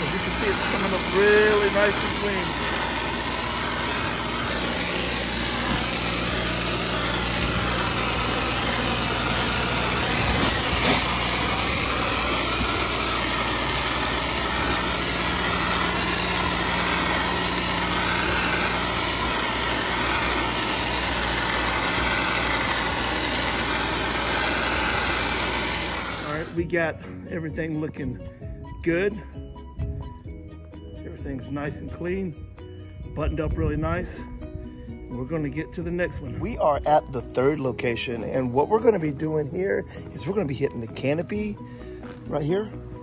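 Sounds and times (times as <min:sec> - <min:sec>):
water spray hissing: 0:00.0 - 0:26.6
engine running steadily: 0:00.0 - 0:27.2.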